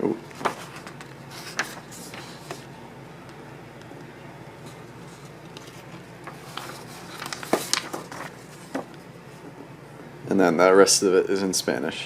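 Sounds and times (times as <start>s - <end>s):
faint room hum: 0.0s - 12.0s
pages turning: 0.3s - 2.7s, 4.6s - 9.0s
paper rustling and crinkling: 0.3s - 2.7s, 4.6s - 9.0s.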